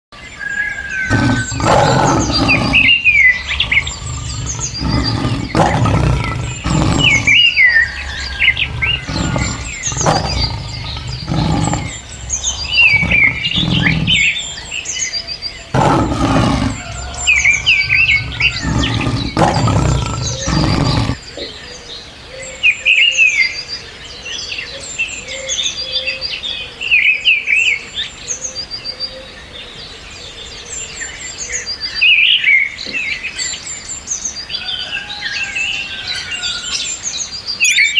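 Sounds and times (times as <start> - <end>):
birds chirping: 0.7 - 21.2.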